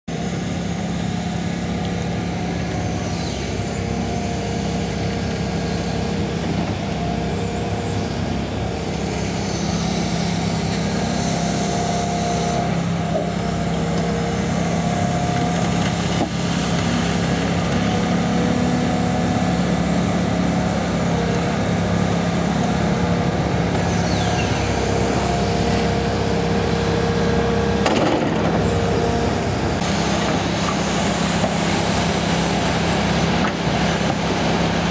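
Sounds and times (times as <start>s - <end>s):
excavator diesel engine running: 0.1s - 34.9s
hydraulic whine: 0.1s - 34.9s.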